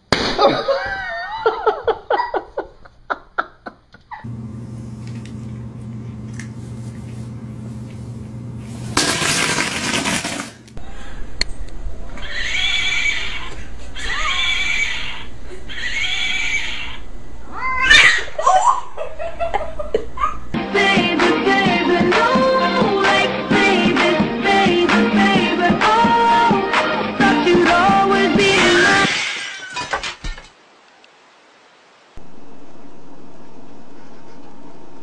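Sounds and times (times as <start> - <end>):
steady low hum: 4.2 - 9.3, 10.6 - 17.6, 32.2 - 35.0
cat yowling: 12.2 - 18.8.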